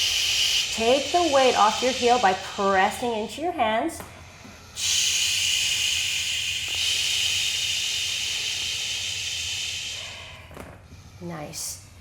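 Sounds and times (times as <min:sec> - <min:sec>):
breath hissing through mouth: 0:00.0 - 0:03.0, 0:04.8 - 0:10.4.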